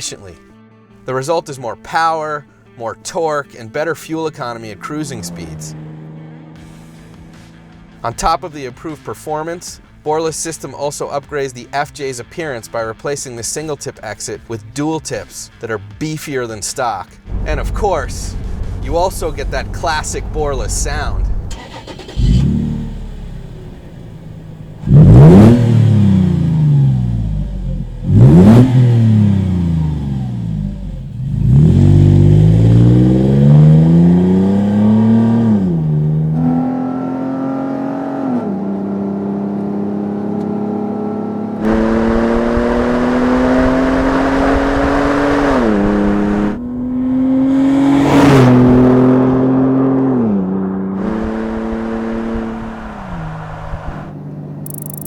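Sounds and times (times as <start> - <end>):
car engine revving and accelerating: 4.9 - 8.0, 17.3 - 55.0
rushing noise: 17.3 - 22.1.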